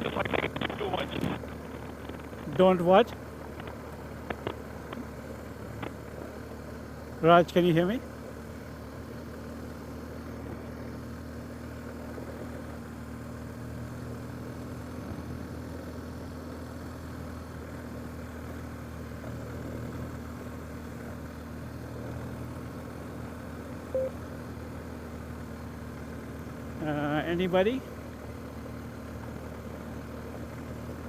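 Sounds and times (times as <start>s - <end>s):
road rumble on dirt road: 0.0s - 31.0s
vehicle engine running: 0.0s - 31.0s
short beep: 23.9s - 24.2s.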